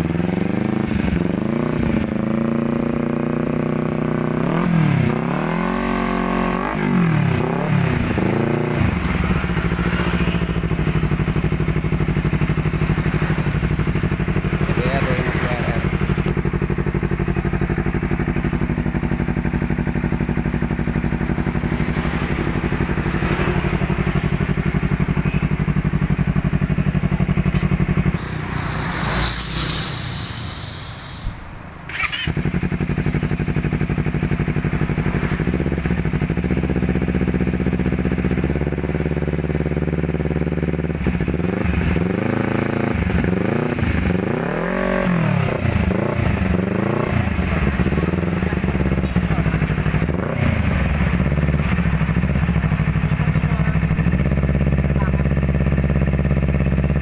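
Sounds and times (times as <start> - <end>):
motorcycle engine idling and revving: 0.0 - 57.0
brief high whine: 28.2 - 32.2.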